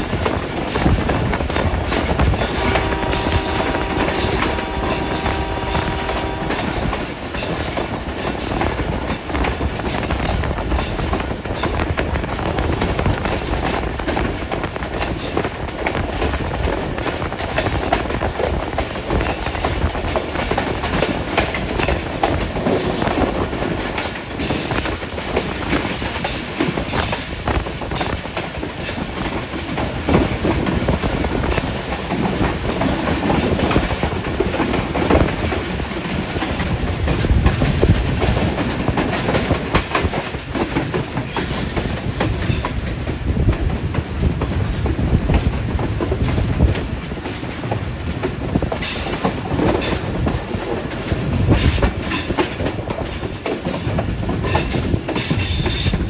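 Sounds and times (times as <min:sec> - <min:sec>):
train wheels rumbling on rails: 0:00.0 - 0:56.0
high wheel squeal: 0:40.8 - 0:43.5.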